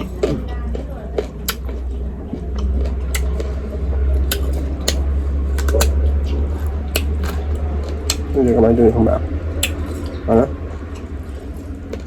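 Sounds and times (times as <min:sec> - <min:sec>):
steady low hum: 0:00.0 - 0:12.0
eating and food handling clicks: 0:01.2 - 0:08.7, 0:09.6 - 0:10.2.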